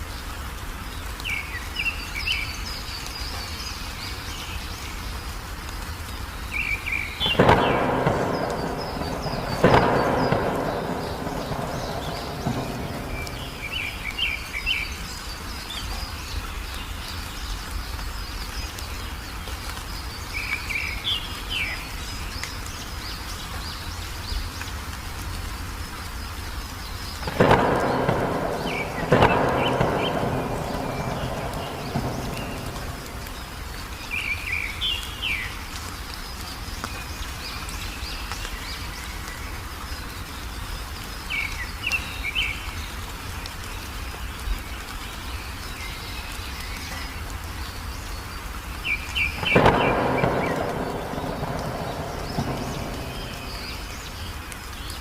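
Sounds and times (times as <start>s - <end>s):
rain hissing: 0.0s - 55.0s
small birds chirping: 0.0s - 55.0s
thunder claps: 7.2s - 15.2s, 27.2s - 34.9s, 49.2s - 55.0s.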